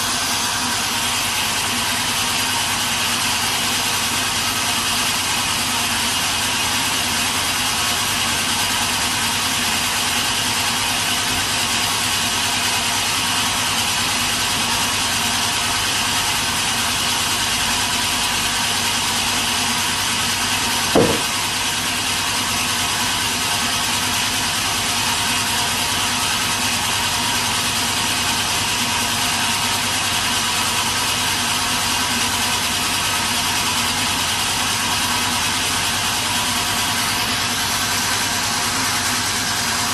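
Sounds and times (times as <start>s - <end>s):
sawmill machinery drone: 0.0s - 39.9s
brief thump: 20.9s - 21.4s.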